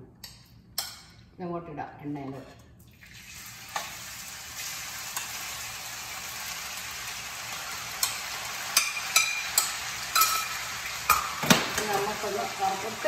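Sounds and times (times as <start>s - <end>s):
chicken sizzling in hot oil: 3.1s - 13.0s
spoon clinking against bowl: 8.8s - 11.3s.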